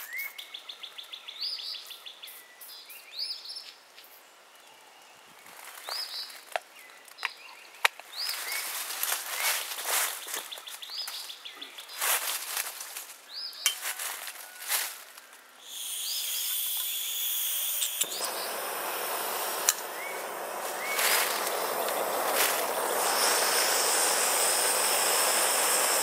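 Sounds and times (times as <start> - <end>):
bird chirping: 0.0 - 12.1, 15.6 - 26.0
steady hiss: 15.6 - 26.0
broad rushing noise: 18.0 - 26.0.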